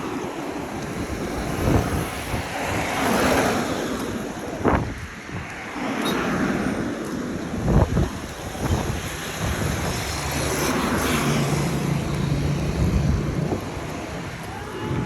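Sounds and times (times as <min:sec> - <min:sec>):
vehicle passing: 0:08.7 - 0:15.0.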